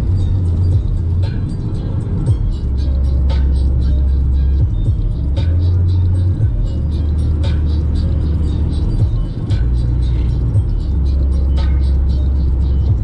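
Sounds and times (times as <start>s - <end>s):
bass-heavy music on radio: 0.0s - 13.0s
engine and road noise: 0.0s - 13.0s.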